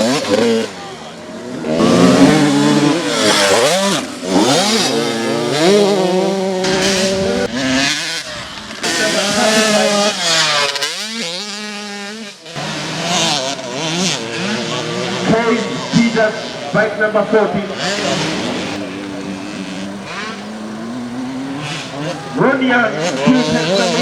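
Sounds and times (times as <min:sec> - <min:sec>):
motocross engines revving: 0:00.0 - 0:24.0.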